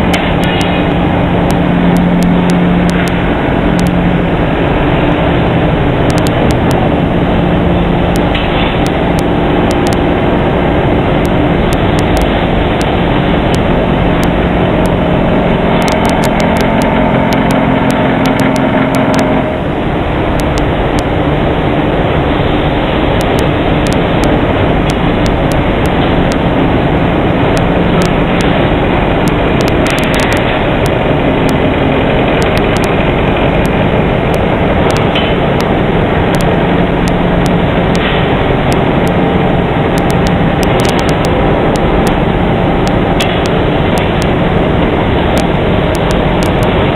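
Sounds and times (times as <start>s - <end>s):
sharp clicks: 0.0s - 4.0s, 6.0s - 6.9s, 8.1s - 10.1s, 11.2s - 19.5s, 20.4s - 21.2s, 23.2s - 26.4s, 27.5s - 28.6s, 29.2s - 39.2s, 39.9s - 42.2s, 42.8s - 46.9s
milling machine drone: 0.0s - 46.9s.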